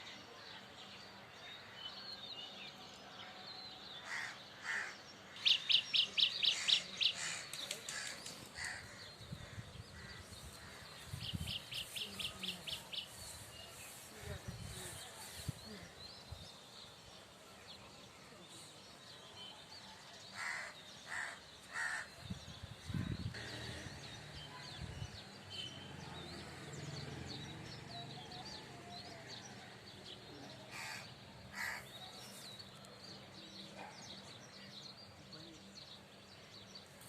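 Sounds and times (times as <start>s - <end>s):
small birds chirping: 4.1s - 19.3s.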